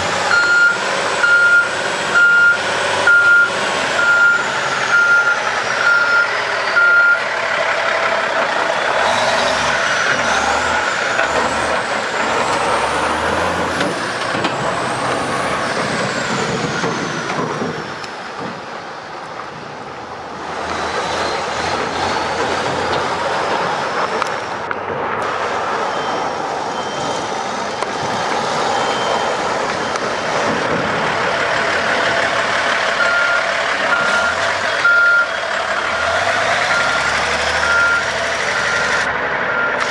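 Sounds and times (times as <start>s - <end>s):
dump truck engine running: 0.0s - 39.9s
reversing alarm beeps: 0.3s - 7.3s, 25.9s - 28.0s, 28.7s - 30.2s, 33.0s - 35.3s, 36.7s - 39.8s.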